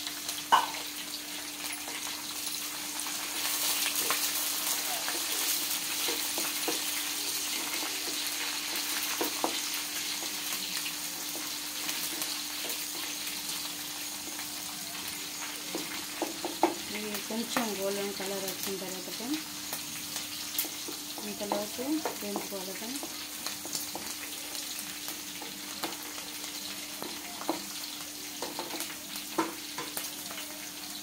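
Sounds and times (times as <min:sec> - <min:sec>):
onions sizzling in hot oil: 0:00.0 - 0:31.0.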